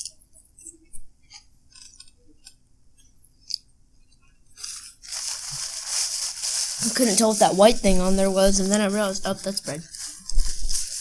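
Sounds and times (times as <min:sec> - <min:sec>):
paper wrapping rustling: 0:04.6 - 0:11.0.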